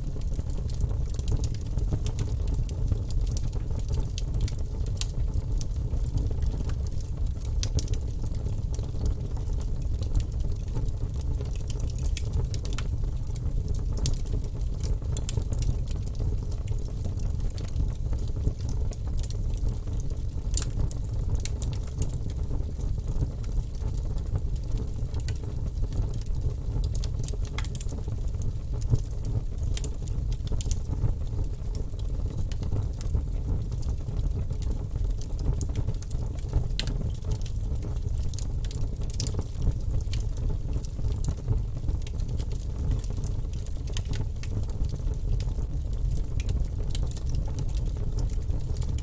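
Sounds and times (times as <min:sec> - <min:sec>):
wood fire crackling and popping: 0:00.0 - 0:49.0.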